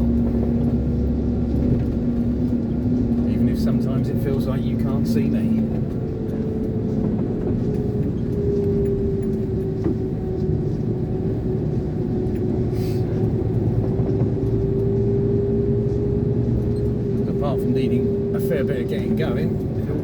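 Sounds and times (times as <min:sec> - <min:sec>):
diesel engine drone with whine: 0:00.0 - 0:20.0.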